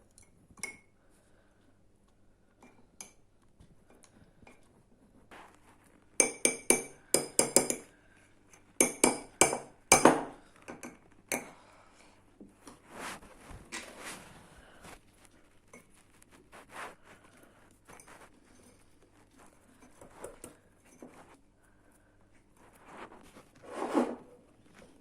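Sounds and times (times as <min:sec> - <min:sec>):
cutlery clinking against dish: 0:06.2 - 0:07.9.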